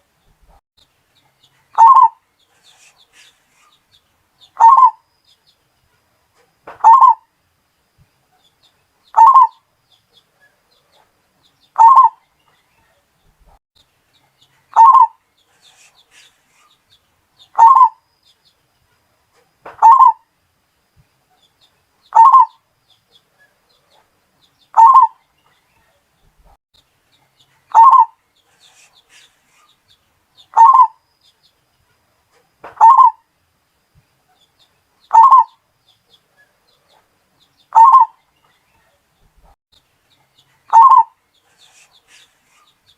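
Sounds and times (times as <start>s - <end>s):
dove cooing: 1.8s - 2.2s, 4.6s - 5.0s, 6.8s - 7.2s, 9.2s - 9.6s, 11.8s - 12.2s, 14.7s - 15.2s, 17.6s - 18.0s, 19.8s - 20.2s, 22.1s - 22.6s, 24.8s - 25.2s, 27.7s - 29.2s, 30.5s - 31.0s, 32.8s - 33.2s, 35.1s - 35.6s, 37.7s - 38.2s, 40.7s - 41.1s.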